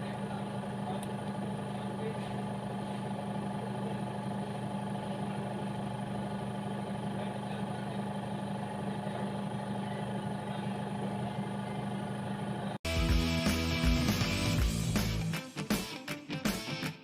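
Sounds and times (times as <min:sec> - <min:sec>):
machine hum: 0:00.0 - 0:12.8.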